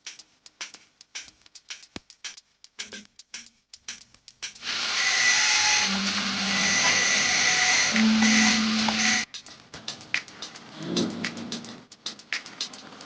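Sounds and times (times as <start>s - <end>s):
power tool motor whining: 4.7s - 9.2s.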